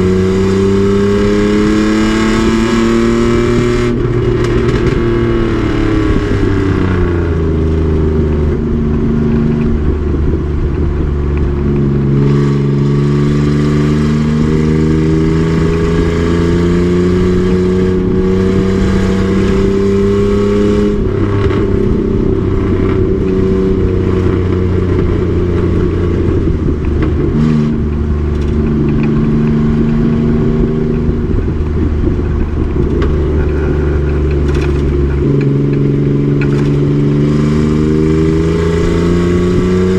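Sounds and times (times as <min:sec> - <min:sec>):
race truck engine revving: 0:00.0 - 0:39.9.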